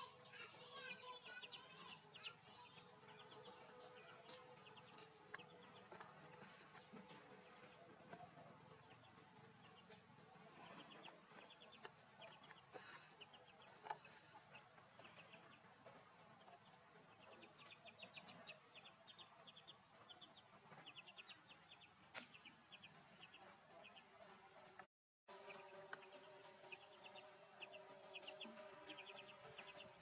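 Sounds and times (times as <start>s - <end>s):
faint outdoor ambience: 0.0s - 30.0s
bird chirping: 25.4s - 30.0s.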